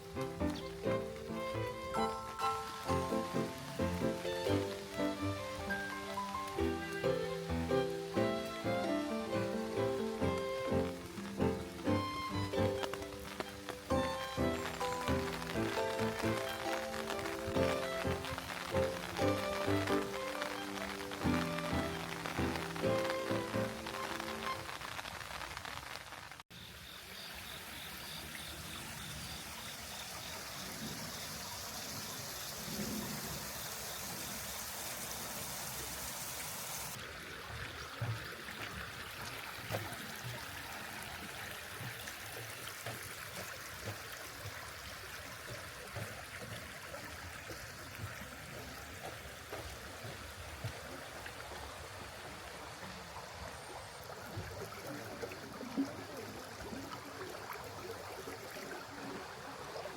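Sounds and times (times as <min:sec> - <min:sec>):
small water drips: 0:00.0 - 0:26.4, 0:27.2 - 0:59.9
rain hiss: 0:00.0 - 0:37.2
stream trickling and splashing: 0:00.0 - 0:59.9.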